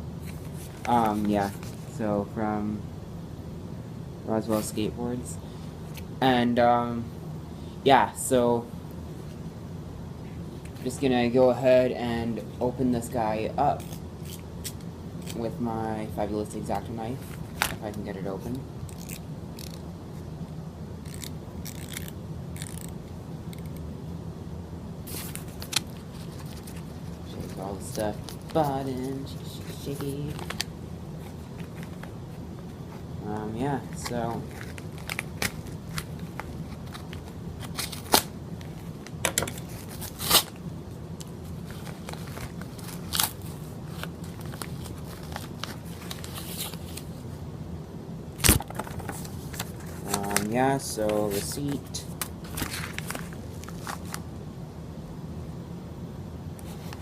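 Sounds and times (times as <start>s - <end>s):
steady low hum: 0.0s - 57.0s
packaging crinkling and crackling: 33.9s - 40.6s, 41.5s - 47.1s, 51.2s - 54.2s.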